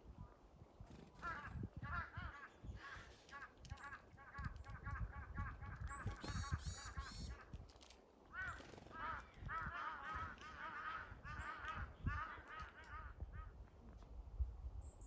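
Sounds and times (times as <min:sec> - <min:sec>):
flock of birds honking: 0:08.4 - 0:13.5.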